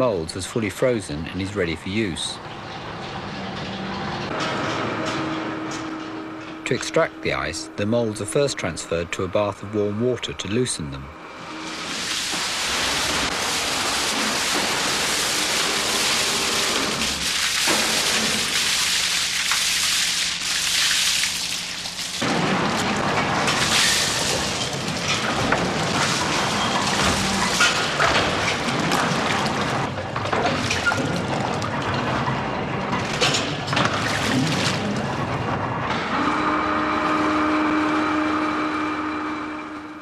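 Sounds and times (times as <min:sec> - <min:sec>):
clanks and knocks: 0:02.5 - 0:06.9, 0:22.2 - 0:34.2
water rushing and splashing: 0:11.6 - 0:31.9.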